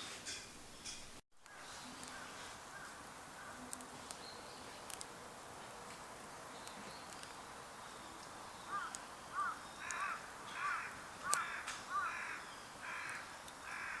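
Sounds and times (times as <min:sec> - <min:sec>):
crow cawing: 0:08.7 - 0:14.0.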